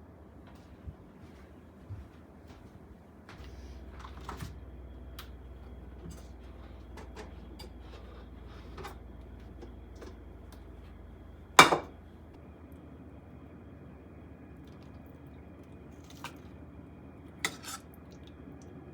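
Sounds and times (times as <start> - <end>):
low steady hum: 0.0 - 18.9
dishes clinking: 11.6 - 11.9
kitchenware clicks and taps: 11.6 - 11.9.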